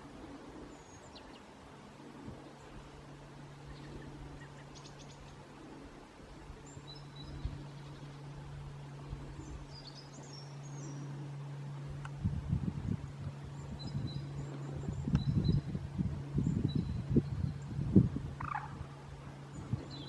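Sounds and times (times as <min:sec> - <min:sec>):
low hum: 0:00.0 - 0:20.0
high bird calls: 0:18.4 - 0:20.0.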